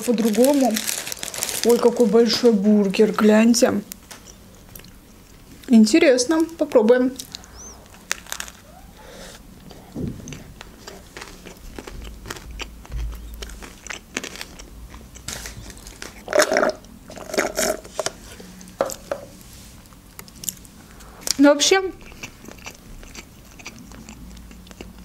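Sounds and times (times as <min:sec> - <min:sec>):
close-miked chewing crunches: 0:03.9 - 0:05.8, 0:06.4 - 0:08.7, 0:09.6 - 0:17.8, 0:22.0 - 0:25.0.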